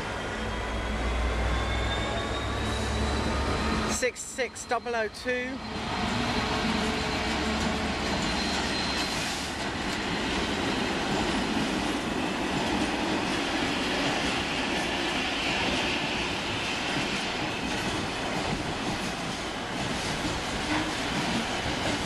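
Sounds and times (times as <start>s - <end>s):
train wheels clattering on rails: 6.0s - 22.0s.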